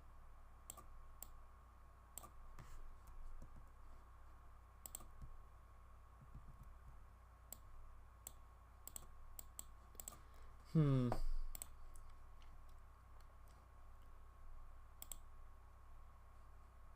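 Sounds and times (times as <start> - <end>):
faint electrical hum: 0.0 - 16.9
computer mouse clicks: 0.6 - 1.4, 2.2 - 2.4, 4.8 - 5.4, 6.2 - 10.2, 11.5 - 14.1, 15.0 - 15.3.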